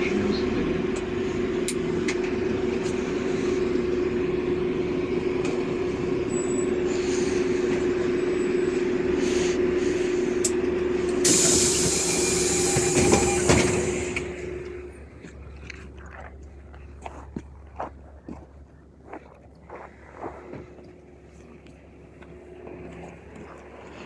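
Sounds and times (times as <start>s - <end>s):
bus engine drone: 0.0s - 24.0s
compressed air hiss: 11.2s - 14.3s.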